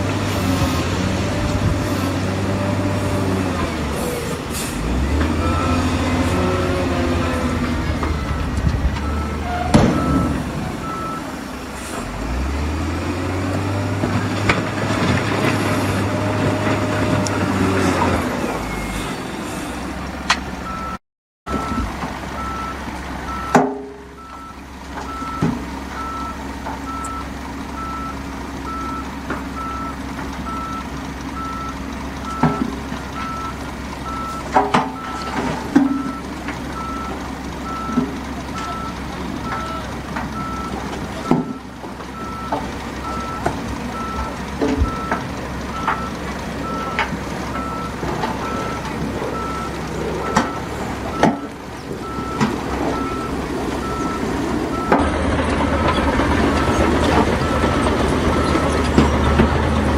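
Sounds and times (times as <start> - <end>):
heavy diesel machinery running: 0.0 - 59.9
reversing alarm beeps: 8.1 - 11.3, 20.6 - 58.8.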